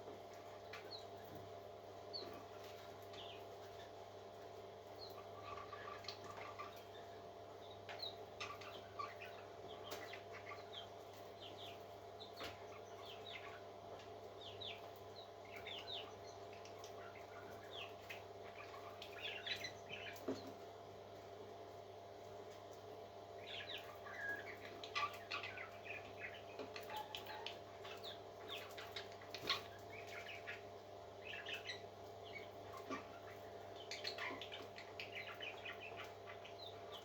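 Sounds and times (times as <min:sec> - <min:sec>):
steady low hum: 0:00.0 - 0:37.0
parrot chicks cheeping: 0:00.4 - 0:01.4, 0:02.0 - 0:20.6, 0:23.1 - 0:37.0.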